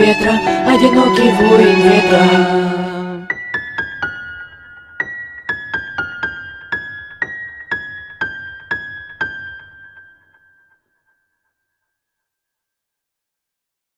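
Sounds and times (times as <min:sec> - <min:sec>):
keyboard playing high notes: 0:00.0 - 0:03.4.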